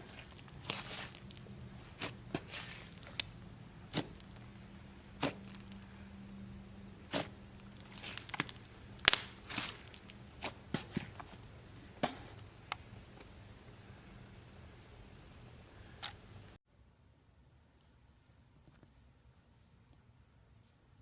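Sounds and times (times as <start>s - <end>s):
slime popping and clicking: 8.3s - 9.4s.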